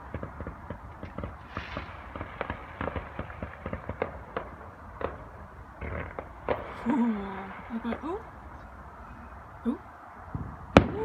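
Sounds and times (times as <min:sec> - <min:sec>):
firework hiss: 0:00.0 - 0:08.4
fireworks crackling and popping: 0:00.0 - 0:09.0, 0:10.2 - 0:11.0.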